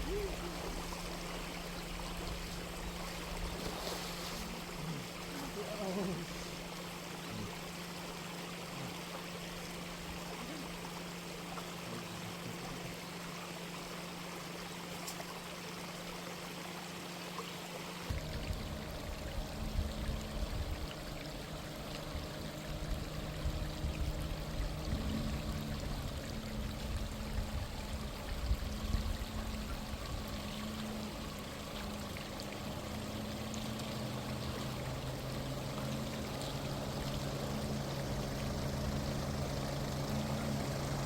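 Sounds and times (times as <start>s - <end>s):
low rumble with hum: 0.0s - 41.0s
stream water rushing: 0.0s - 41.0s.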